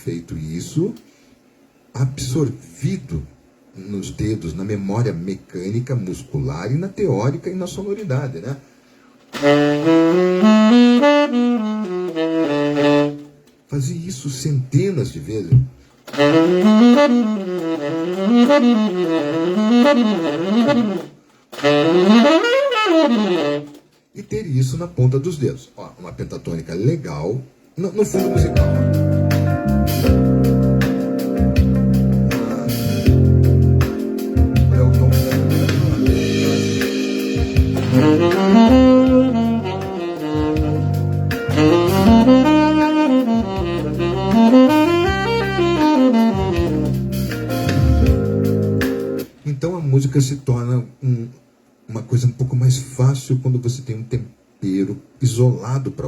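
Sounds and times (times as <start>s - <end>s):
saxophone playing scale runs: 9.3s - 13.3s, 16.1s - 23.8s, 34.6s - 48.4s
backing track with bass line: 16.1s - 23.6s, 28.1s - 49.3s.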